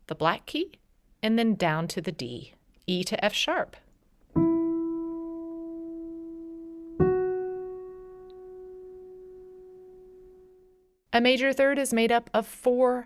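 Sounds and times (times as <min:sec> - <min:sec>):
piano notes ringing: 0:04.3 - 0:10.9.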